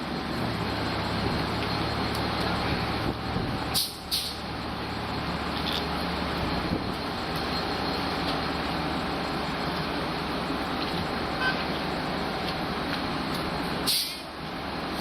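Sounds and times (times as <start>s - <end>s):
diesel train engine idling: 0.0s - 15.0s
air release hiss: 3.8s - 4.4s, 13.8s - 14.3s.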